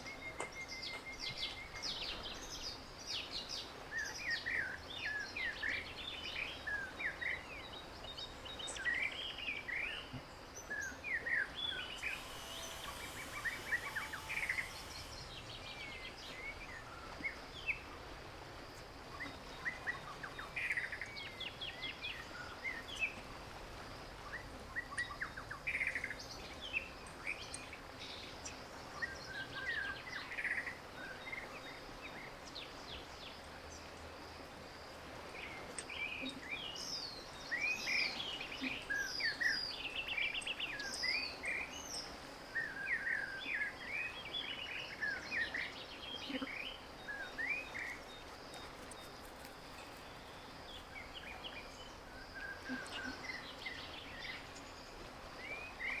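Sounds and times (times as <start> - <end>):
birds chirping: 0.0 - 23.2
faint background hiss: 0.0 - 56.0.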